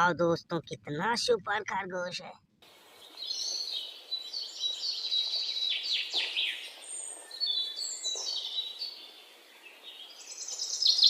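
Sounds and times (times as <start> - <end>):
birds chirping and calling: 3.0 - 11.0.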